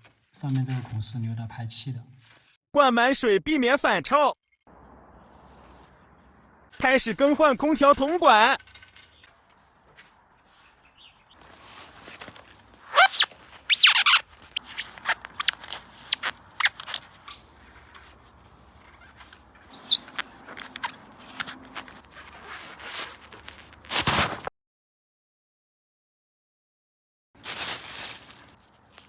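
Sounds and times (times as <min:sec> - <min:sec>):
squeaky scrapes: 0:05.2 - 0:24.5.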